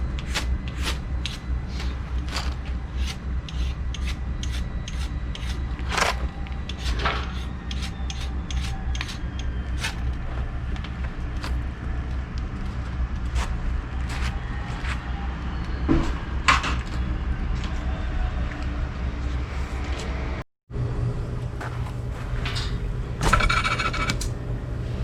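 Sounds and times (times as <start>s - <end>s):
low rumble: 9.3s - 25.0s.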